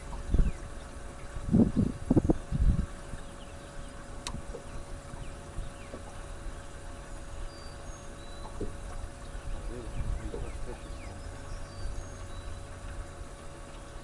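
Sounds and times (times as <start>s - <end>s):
steady hum: 0.0s - 14.0s
faint bird chirps: 4.7s - 8.7s.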